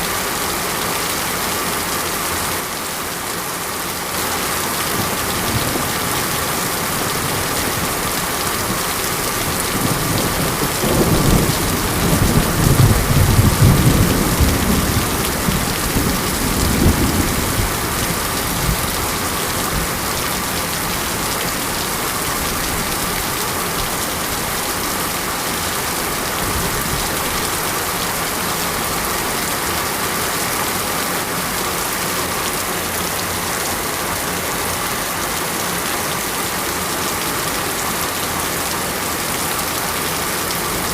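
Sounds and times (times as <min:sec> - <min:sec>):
steady rain falling: 0:00.0 - 0:40.9
rolling thunder: 0:08.7 - 0:20.8.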